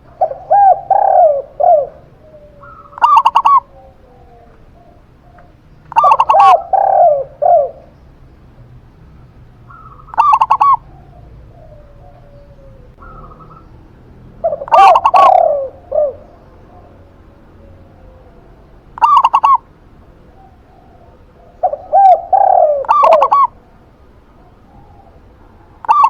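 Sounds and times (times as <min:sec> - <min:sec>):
doves cooing: 0:00.0 - 0:26.0.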